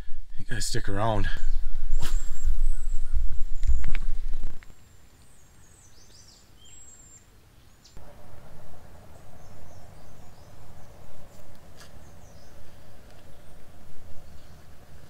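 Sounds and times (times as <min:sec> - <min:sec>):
bird chirps: 0:01.4 - 0:15.0
faint steady hum: 0:08.0 - 0:15.0
low rumble: 0:08.0 - 0:15.0.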